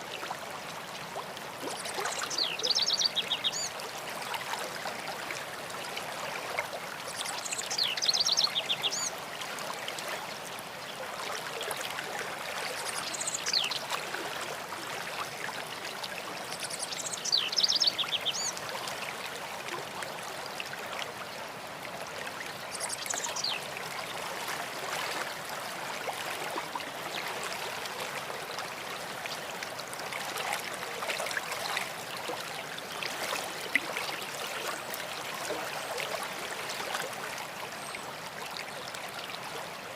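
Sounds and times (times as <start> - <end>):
stream running: 0.0 - 39.9
songbird singing: 1.9 - 3.7, 7.1 - 9.1, 12.9 - 13.9, 16.5 - 18.5, 22.7 - 23.6.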